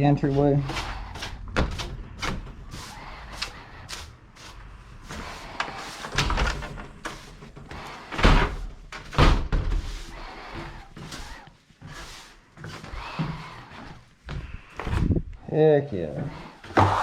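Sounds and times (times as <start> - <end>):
heavy thumps and knocks: 1.1 - 2.7.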